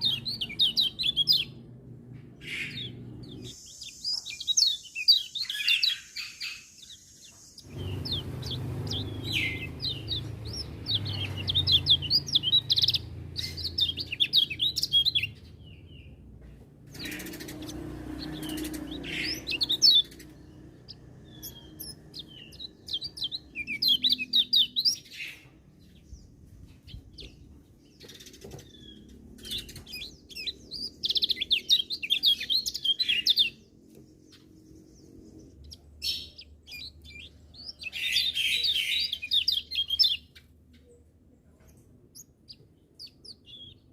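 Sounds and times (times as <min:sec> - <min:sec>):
songbird twittering and trilling: 0:00.0 - 0:43.9
low rumbling background: 0:07.7 - 0:23.6.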